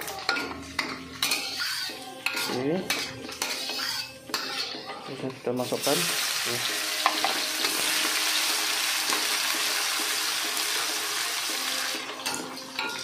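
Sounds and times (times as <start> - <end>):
metal ladle stirring: 0.0 - 5.8
oil sizzling in a wok: 0.0 - 13.0.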